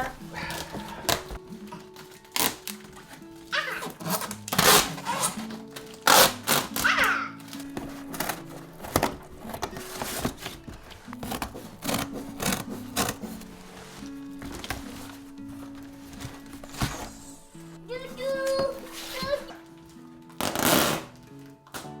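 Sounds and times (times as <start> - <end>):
background music: 0.0 - 22.0
cardboard boxes being cut: 3.6 - 19.5, 20.4 - 21.2.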